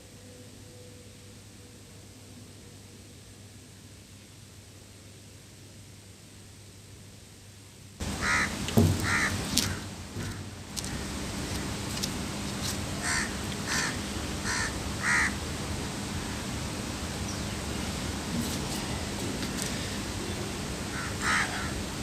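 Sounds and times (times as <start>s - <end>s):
background hiss: 0.0s - 22.0s
crows cawing: 8.2s - 11.1s, 13.0s - 15.4s, 20.9s - 21.8s
knocks: 8.7s - 10.4s.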